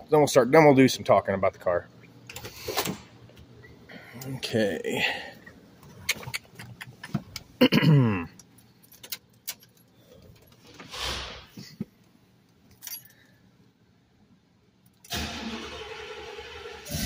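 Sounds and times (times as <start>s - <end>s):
car keys jangling: 8.4s - 10.6s, 12.5s - 13.3s.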